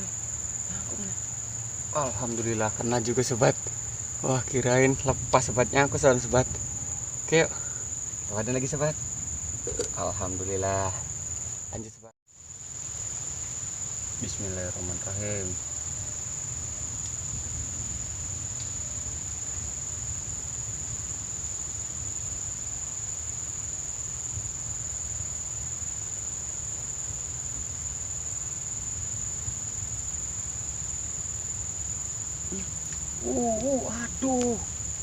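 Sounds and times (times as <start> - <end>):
low steady rumble: 0.0 - 11.5
high-pitched insect trill: 0.0 - 35.0.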